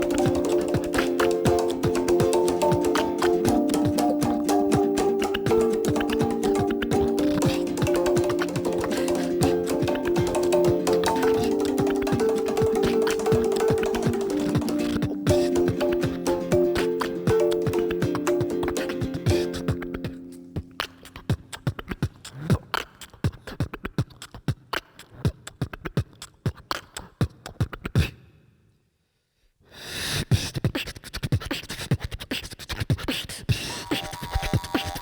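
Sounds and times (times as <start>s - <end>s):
pitched instrument notes: 0.0s - 20.7s
percussion-heavy music: 0.0s - 22.9s.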